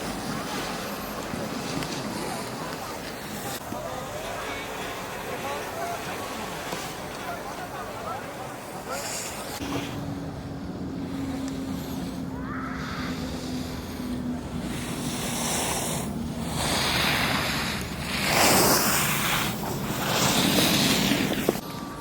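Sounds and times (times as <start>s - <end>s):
skis scraping on snow: 0.0s - 10.0s, 14.8s - 21.6s.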